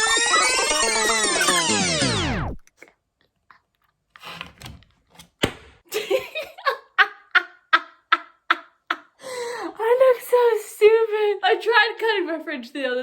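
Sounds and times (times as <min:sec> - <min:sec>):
woman laughing: 0:05.9 - 0:09.2.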